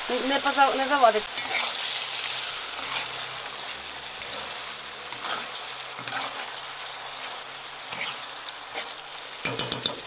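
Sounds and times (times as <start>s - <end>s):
food sizzling in a pot: 0.0s - 10.0s
spoon stirring and scraping: 1.3s - 3.3s, 4.2s - 6.6s, 7.2s - 10.0s.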